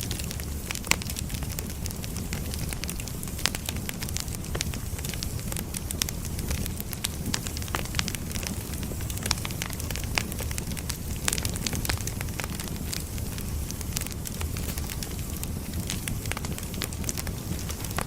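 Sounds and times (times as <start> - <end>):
firewood crackling and popping: 0.0 - 18.0
flames rumbling and hissing: 0.0 - 18.0.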